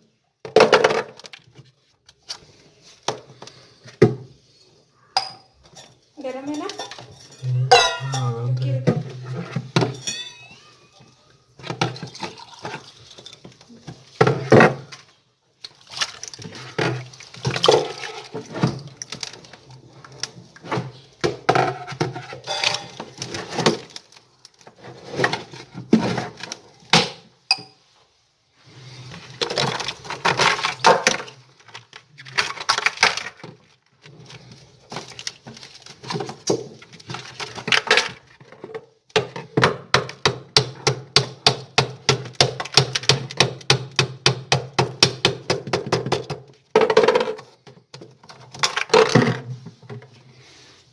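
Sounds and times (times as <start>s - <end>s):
hand tools clinking on metal: 22.5s - 23.0s.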